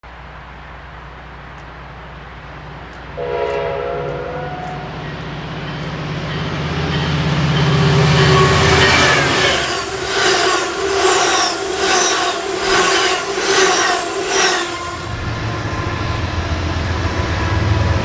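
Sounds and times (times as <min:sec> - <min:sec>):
train engine rumble: 0:00.0 - 0:18.0
train horn blowing: 0:03.1 - 0:16.6.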